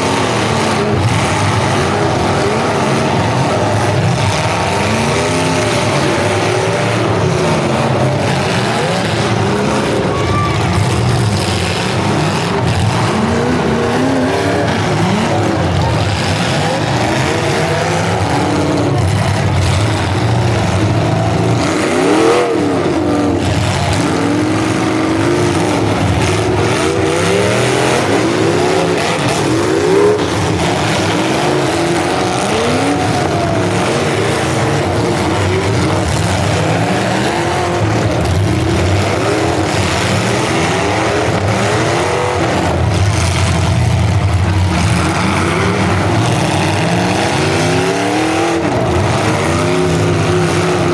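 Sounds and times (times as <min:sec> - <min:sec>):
car engines revving: 0:00.0 - 0:50.9.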